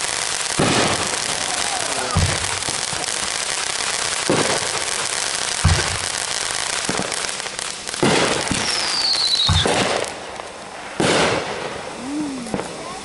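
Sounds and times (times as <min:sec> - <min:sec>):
falling firework whistle: 0:00.0 - 0:07.3, 0:08.0 - 0:10.1
firework booms: 0:00.0 - 0:13.0
firework crackling: 0:00.0 - 0:13.0.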